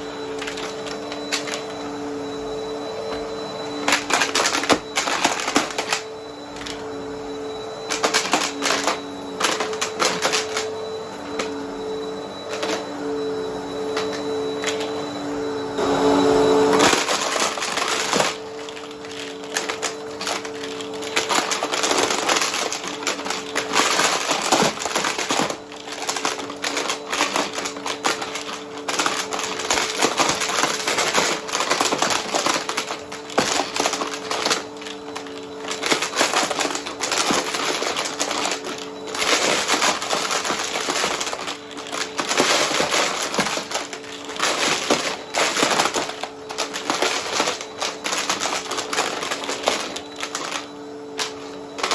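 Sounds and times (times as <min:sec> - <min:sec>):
vacuum cleaner motor hum: 0:00.0 - 0:51.9
coins rattling: 0:07.9 - 0:11.6, 0:16.8 - 0:51.9.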